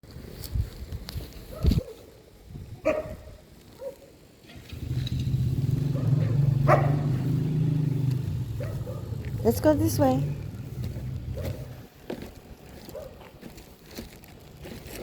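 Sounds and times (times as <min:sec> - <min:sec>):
vehicle engine humming: 0:04.5 - 0:13.5.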